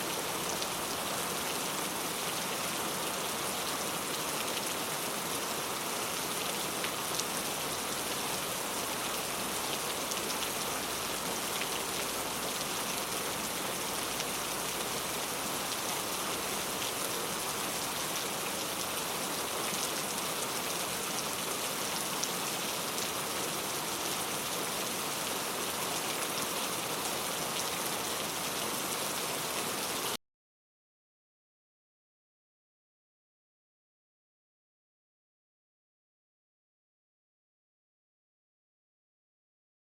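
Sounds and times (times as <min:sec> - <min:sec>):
rain pattering: 0:00.0 - 0:30.2.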